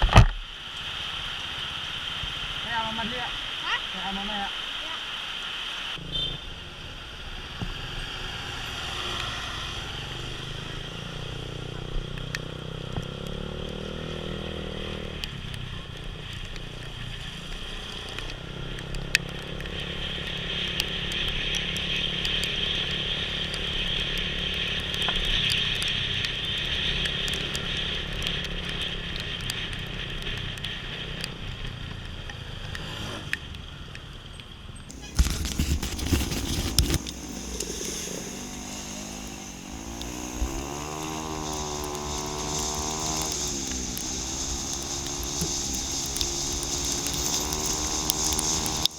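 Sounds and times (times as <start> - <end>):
wind and rain hiss: 0.0 - 34.2, 36.4 - 48.9
motorcycle engine running: 7.9 - 32.8, 34.9 - 48.9.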